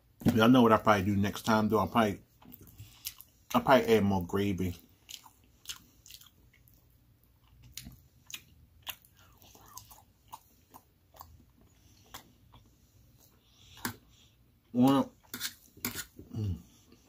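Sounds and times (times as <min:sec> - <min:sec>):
chewing food: 0:02.3 - 0:03.7, 0:04.7 - 0:17.0.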